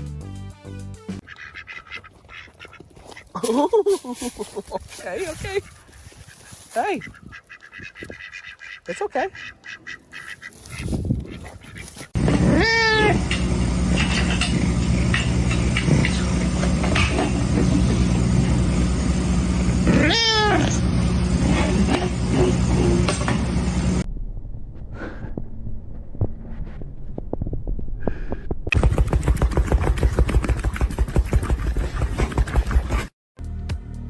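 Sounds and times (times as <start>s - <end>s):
steady low hum: 12.1s - 29.4s
cat meowing: 19.9s - 20.8s.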